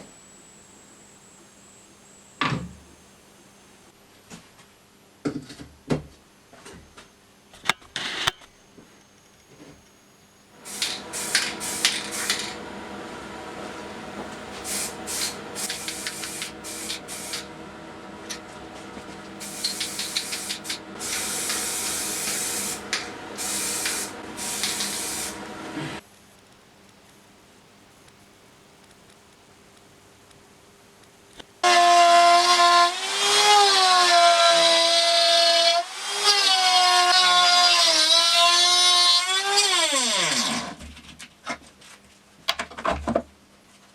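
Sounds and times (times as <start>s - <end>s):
bursts of hiss: 10.6s - 12.6s, 13.7s - 17.5s, 19.3s - 25.5s
scattered clicks and knocks: 42.5s - 42.9s.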